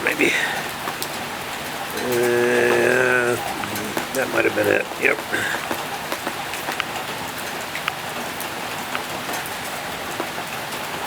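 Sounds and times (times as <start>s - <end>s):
steady rain: 0.0s - 11.0s
water drops tapping: 1.8s - 8.0s.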